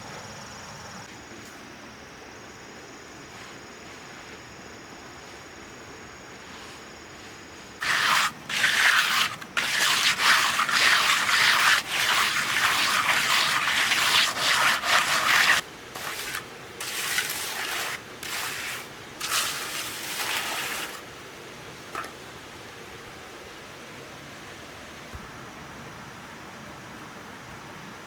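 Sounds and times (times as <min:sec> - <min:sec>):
hand tool scraping cement mix: 0:07.8 - 0:21.0.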